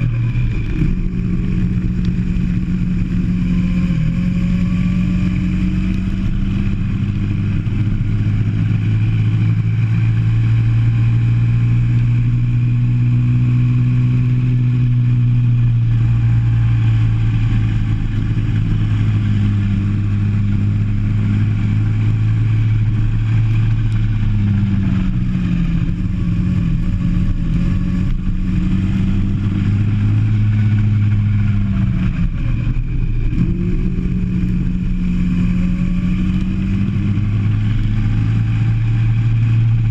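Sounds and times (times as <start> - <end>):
go-kart engine: 0.0 - 39.9.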